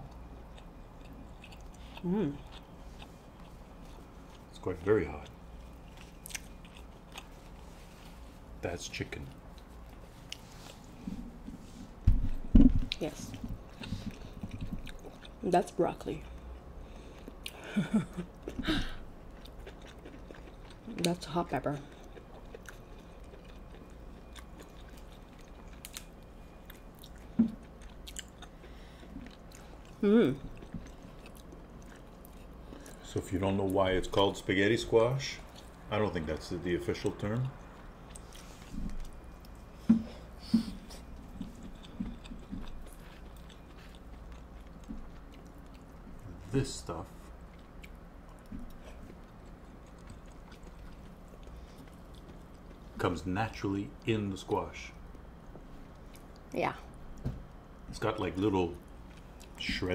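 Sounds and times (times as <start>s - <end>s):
chewing and wet mouth sounds: 0.0s - 59.9s
low steady hum: 0.0s - 59.9s
chewing and wet mouth clicks: 5.2s - 7.3s, 13.8s - 15.4s, 19.3s - 21.2s, 21.9s - 30.0s, 41.3s - 46.2s, 47.5s - 52.8s.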